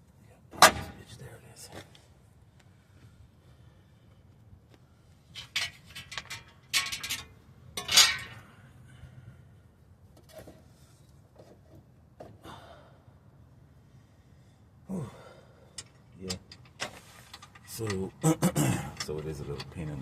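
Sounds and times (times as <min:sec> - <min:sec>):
metal parts clanking: 0:05.4 - 0:08.4, 0:15.7 - 0:20.0.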